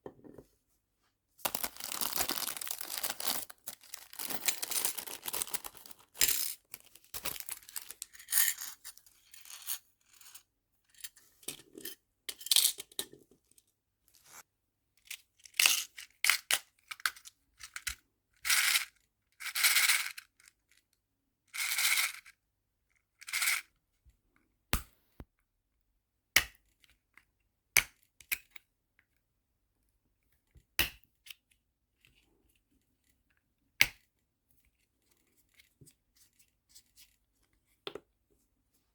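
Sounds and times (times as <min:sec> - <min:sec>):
small charms rattling: 0:01.4 - 0:08.8.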